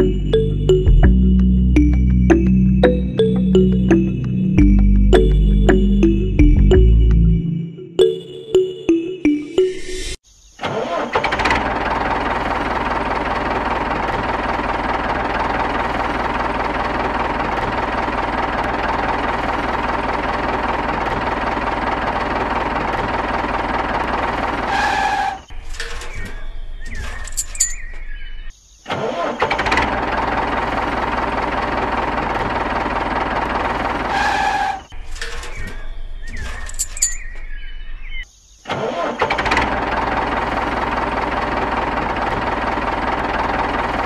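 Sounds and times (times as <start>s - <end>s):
tractor engine running: 0.0s - 9.6s, 10.9s - 28.5s, 29.4s - 38.2s, 39.0s - 44.0s
light clicking and rattling: 25.6s - 27.9s, 36.3s - 37.3s.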